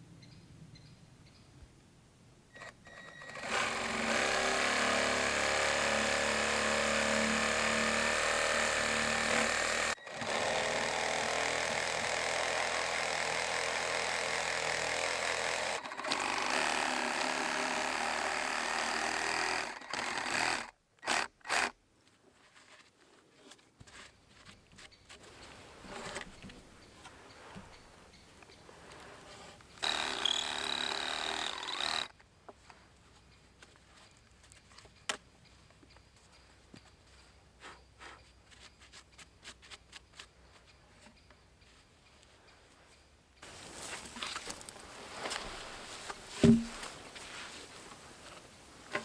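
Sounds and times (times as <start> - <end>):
small power tool running: 3.0 - 21.7, 29.8 - 32.1.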